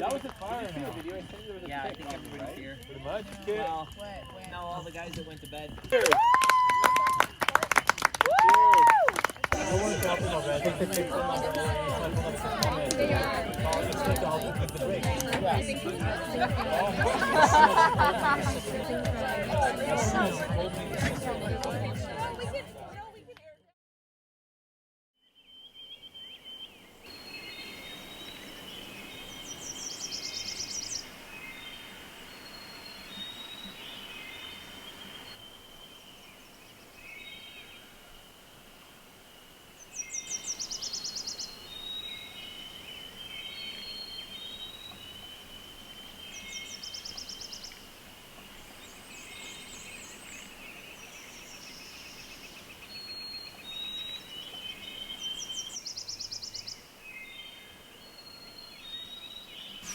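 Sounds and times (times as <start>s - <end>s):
birds chirping and whistling: 39.8s - 47.8s, 48.4s - 59.9s.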